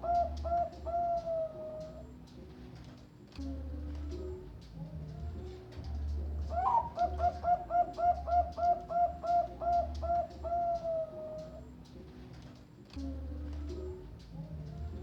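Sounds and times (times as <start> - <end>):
dove cooing: 0.0 - 2.2, 3.4 - 11.9.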